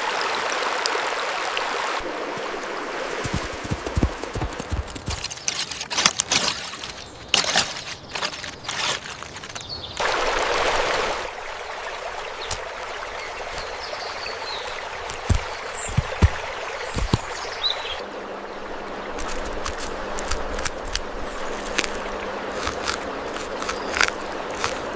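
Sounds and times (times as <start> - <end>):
water splashing and trickling: 0.0 - 24.9
rush of pouring water: 10.0 - 24.9.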